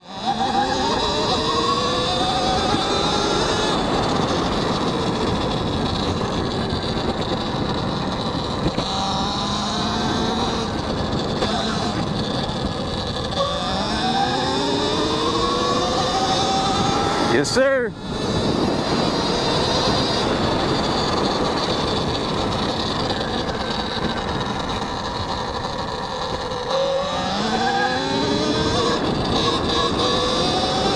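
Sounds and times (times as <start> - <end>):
electric motor whine: 0.0 - 30.9
wind rush on microphone: 0.1 - 30.9
tyre noise: 0.2 - 30.9.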